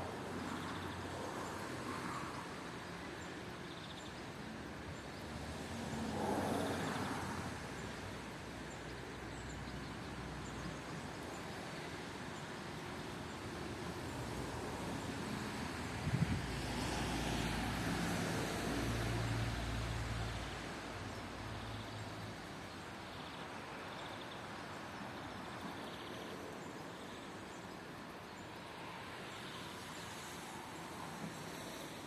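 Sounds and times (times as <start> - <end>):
falling rain hiss: 0.0 - 32.0.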